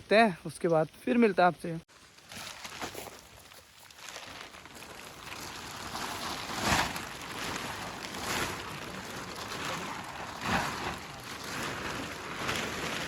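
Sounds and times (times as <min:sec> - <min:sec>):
rustling bursts: 0:02.1 - 0:13.0
rain falling: 0:04.1 - 0:13.0.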